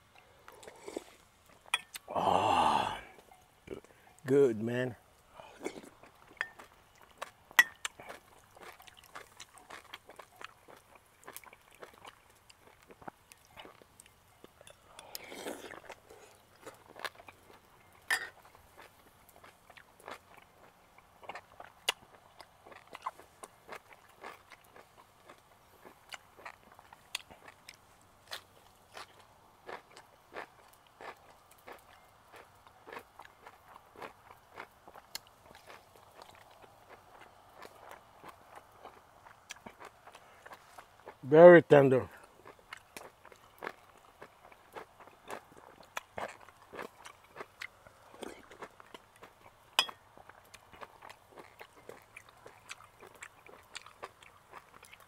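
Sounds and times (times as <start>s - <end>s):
person chewing: 0.1s - 3.9s, 5.3s - 41.2s, 42.2s - 55.0s
metal spoon clinking on bowl: 49.8s - 50.0s.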